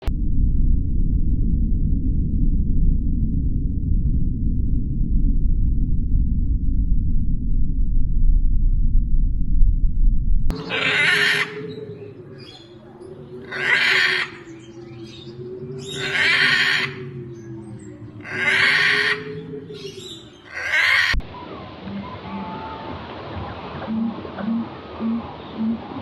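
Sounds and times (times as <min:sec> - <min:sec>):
animal hoarse breathy calls: 0:10.5 - 0:21.2.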